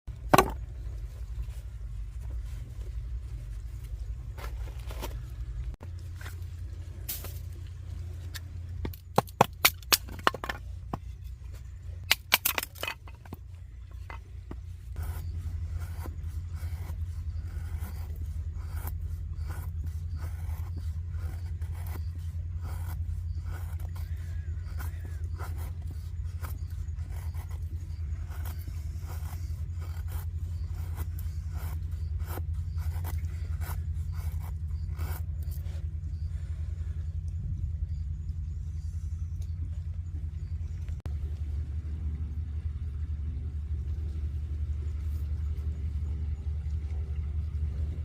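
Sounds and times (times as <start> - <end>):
low rumble: 0.1 - 48.0
knife scraping wood: 0.3 - 0.6, 7.1 - 36.2.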